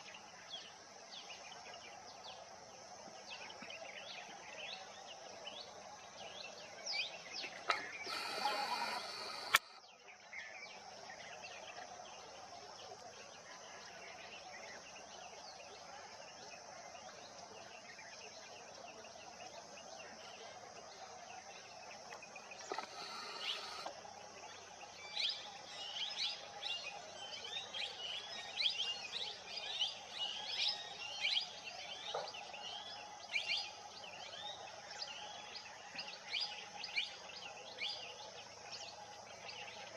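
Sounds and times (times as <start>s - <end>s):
outdoor background hum: 6.4s - 9.9s, 22.0s - 26.8s
birds chirping and calling: 7.4s - 9.8s, 22.4s - 23.9s.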